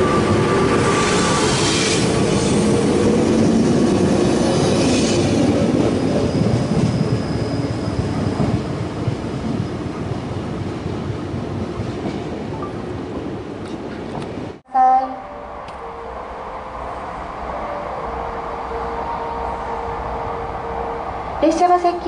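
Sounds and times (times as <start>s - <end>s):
train pulling away: 0.0s - 9.9s, 15.2s - 22.0s.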